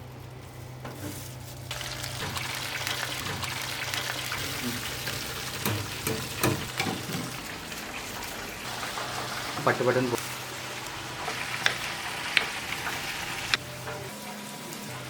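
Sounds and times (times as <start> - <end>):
meat sizzling in hot oil: 1.7 - 13.6.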